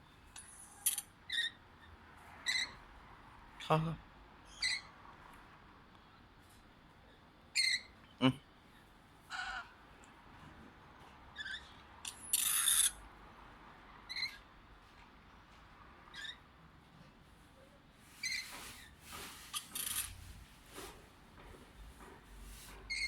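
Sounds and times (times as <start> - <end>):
parrot squawking: 4.5 - 4.9, 7.6 - 8.0, 9.3 - 9.7.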